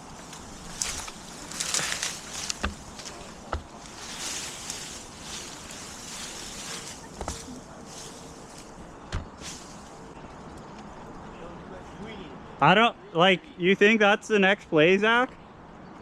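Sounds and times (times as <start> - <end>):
leafy branches rustling: 0.0 - 11.4
wood clicks and knocks: 0.8 - 4.3.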